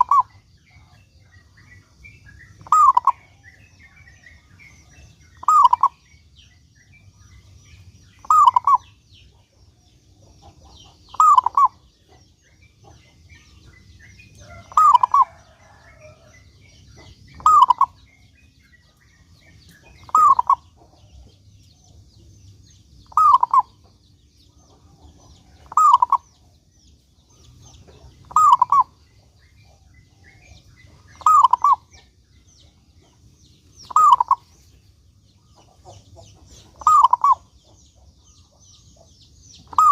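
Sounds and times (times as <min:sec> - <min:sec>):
dove cooing: 0:00.0 - 0:01.0, 0:02.6 - 0:03.4, 0:04.9 - 0:06.0, 0:08.2 - 0:09.0, 0:10.5 - 0:12.2, 0:14.4 - 0:16.4, 0:17.0 - 0:18.3, 0:19.9 - 0:20.9, 0:23.1 - 0:23.9, 0:24.8 - 0:26.5, 0:27.8 - 0:29.0, 0:29.7 - 0:32.1, 0:33.8 - 0:34.5, 0:36.4 - 0:37.6, 0:39.6 - 0:39.9
faint high chirps: 0:00.0 - 0:39.9.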